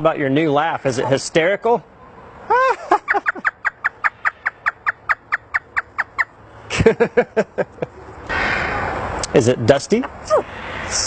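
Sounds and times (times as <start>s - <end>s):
parrot laughing: 2.5s - 8.1s.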